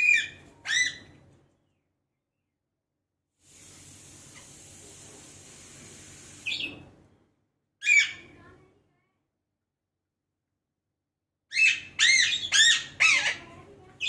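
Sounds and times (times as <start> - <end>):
parakeet calls: 0.0 - 1.2, 7.8 - 8.3, 11.5 - 13.5
faint steady hiss: 3.4 - 7.4.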